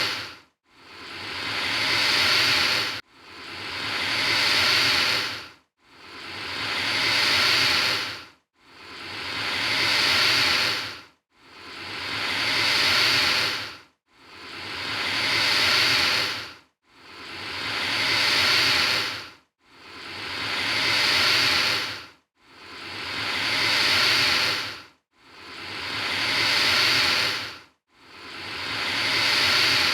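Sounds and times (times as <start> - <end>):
alligator hissing: 0.0 - 0.3, 0.9 - 3.0, 3.6 - 5.4, 6.1 - 8.2, 8.9 - 11.0, 11.7 - 13.7, 14.4 - 16.4, 17.1 - 19.2, 19.9 - 22.0, 22.7 - 24.8, 25.4 - 27.5, 28.2 - 29.9.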